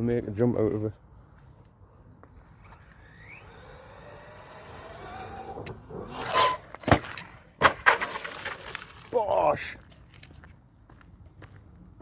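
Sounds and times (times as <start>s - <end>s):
electric motor whining: 2.5s - 6.9s.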